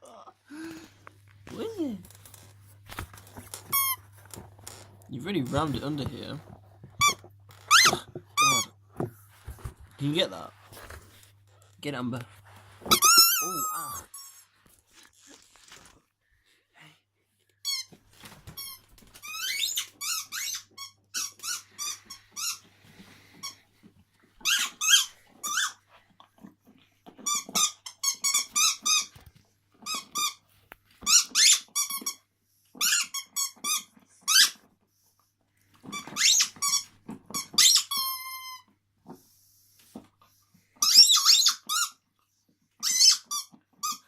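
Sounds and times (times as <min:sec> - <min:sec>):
squeaky toy squeaking: 0:03.7 - 0:04.0, 0:07.0 - 0:08.7, 0:12.9 - 0:14.5, 0:18.6 - 0:22.7, 0:24.4 - 0:25.8, 0:27.2 - 0:29.1, 0:31.0 - 0:32.2, 0:32.8 - 0:34.6, 0:35.9 - 0:38.7, 0:40.8 - 0:42.0, 0:42.8 - 0:44.0.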